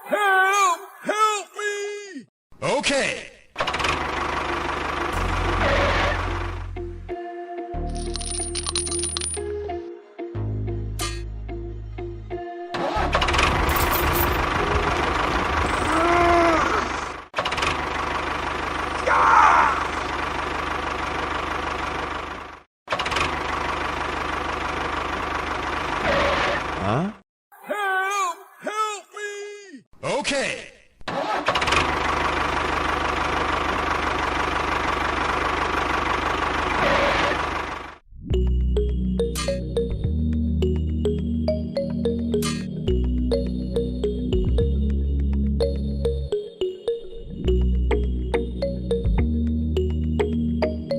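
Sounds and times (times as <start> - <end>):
small engine with rattling knock: 22.9 - 23.5.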